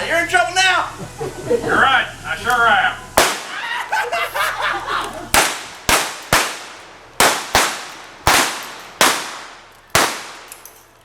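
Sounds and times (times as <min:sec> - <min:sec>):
blank revolver shots echoing: 0:03.2 - 0:03.6, 0:05.4 - 0:10.7.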